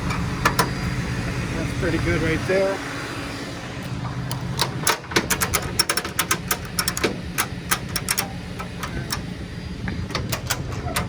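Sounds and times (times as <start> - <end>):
truck engine idling: 0.0 - 11.0
ratchet strap clicking: 3.8 - 9.4.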